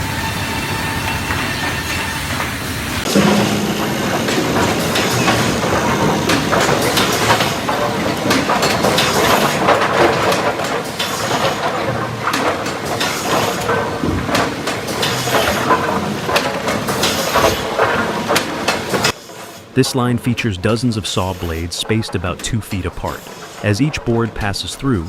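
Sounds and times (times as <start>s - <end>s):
boards clattering on conveyors: 2.4s - 25.0s
machine din: 3.0s - 19.2s, 19.8s - 25.0s
sharp knocks: 3.0s - 19.2s.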